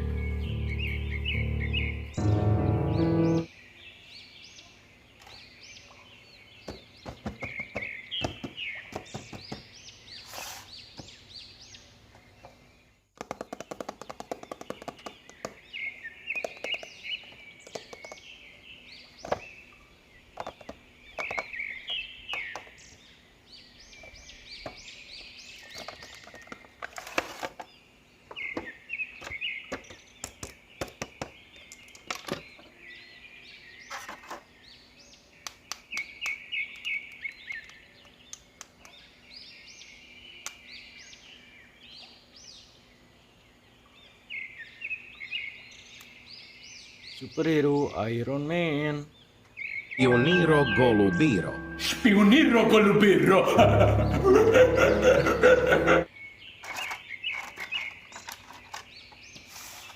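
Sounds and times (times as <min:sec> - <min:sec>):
birds chirping: 0:00.0 - 0:26.9, 0:27.6 - 0:59.9
plastic toys and packaging handled: 0:25.6 - 0:27.7, 0:56.6 - 0:59.9.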